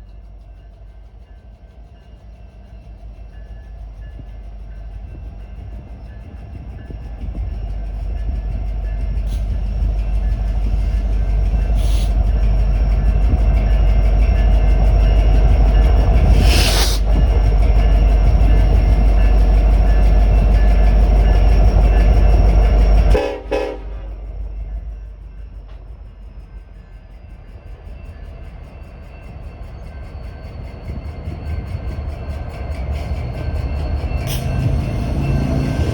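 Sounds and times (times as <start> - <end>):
diesel locomotives rumbling past: 0.0 - 35.9
crossing bell ringing: 0.1 - 16.4, 17.0 - 35.9
train horn: 23.1 - 24.3.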